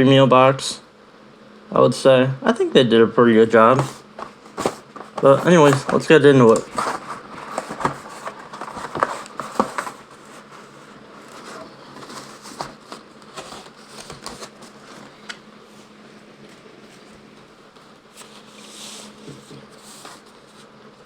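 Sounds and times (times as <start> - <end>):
packaging rustling: 3.6 - 15.4.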